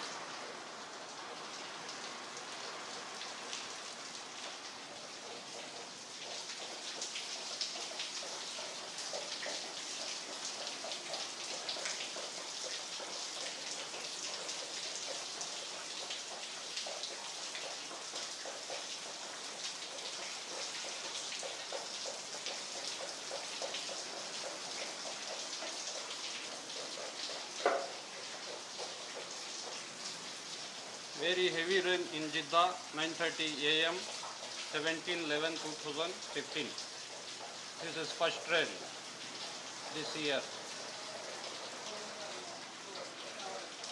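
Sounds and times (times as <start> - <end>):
heavy rain falling: 0.0 - 43.9
raindrops ticking: 0.0 - 43.9
loud knock: 27.6 - 27.9.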